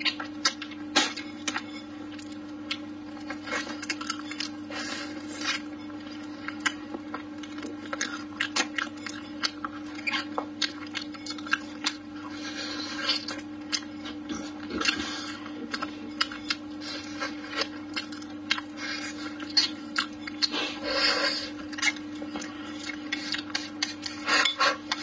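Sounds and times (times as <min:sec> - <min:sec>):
wet chewing and lip smacks: 0:13.0 - 0:20.6, 0:21.6 - 0:24.3.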